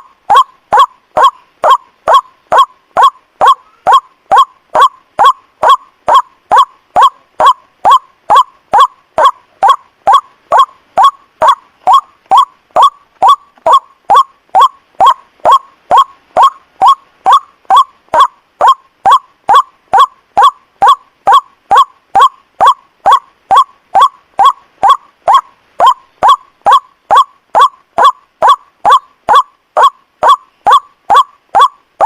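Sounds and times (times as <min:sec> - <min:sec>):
waterhen calls: 0:00.0 - 0:32.0.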